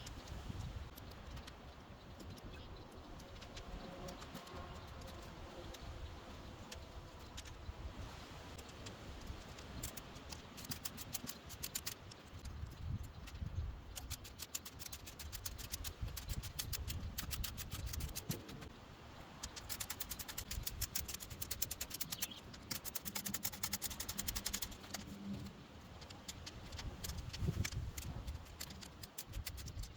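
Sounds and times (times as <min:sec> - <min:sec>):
rapid clicking of tightening bolts: 0:19.4 - 0:25.0, 0:26.2 - 0:29.9.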